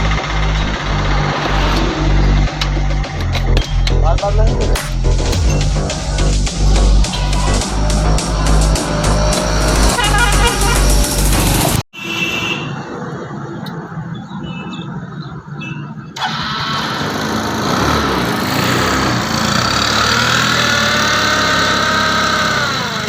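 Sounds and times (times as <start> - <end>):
scooter engine running: 0.0 - 3.8, 5.4 - 11.8, 16.2 - 23.0.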